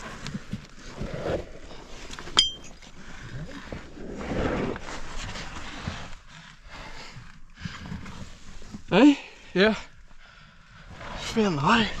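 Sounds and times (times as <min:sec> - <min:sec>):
sharp metallic clink: 0:02.4 - 0:02.7.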